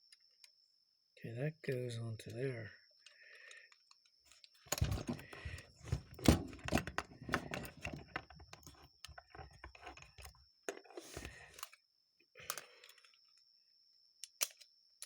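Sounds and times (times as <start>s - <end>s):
small metal parts clicking: 12.4s - 13.3s, 14.2s - 14.7s.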